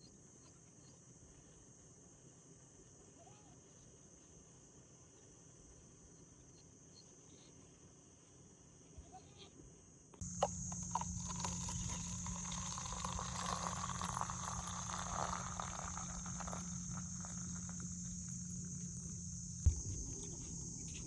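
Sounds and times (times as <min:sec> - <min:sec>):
insects shrilling: 0:10.2 - 0:21.0
low steady hum: 0:10.2 - 0:21.0.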